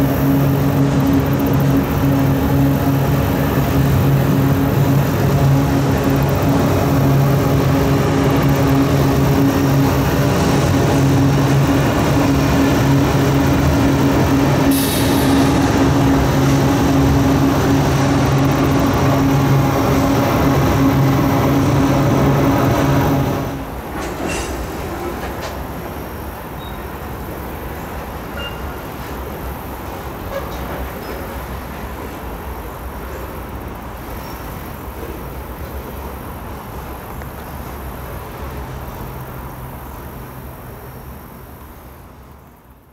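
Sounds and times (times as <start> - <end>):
freight train rumbling: 0.0 - 42.9
faint wheel squeaks: 26.6 - 27.0, 28.3 - 28.9.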